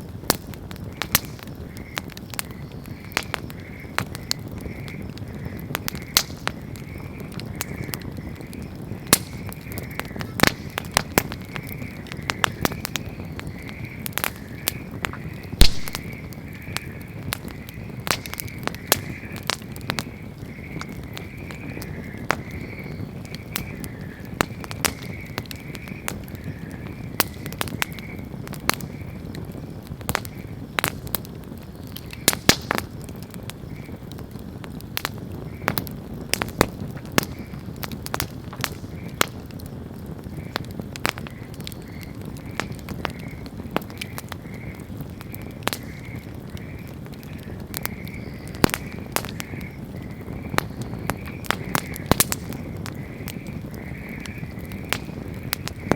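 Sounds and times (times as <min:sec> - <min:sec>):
campfire crackling and popping: 0:00.0 - 0:55.9.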